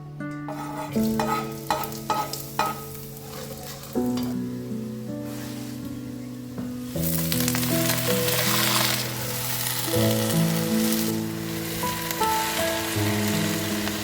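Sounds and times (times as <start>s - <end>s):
background music: 0.0s - 14.0s
food sizzling in hot oil: 0.5s - 4.4s, 6.8s - 14.0s.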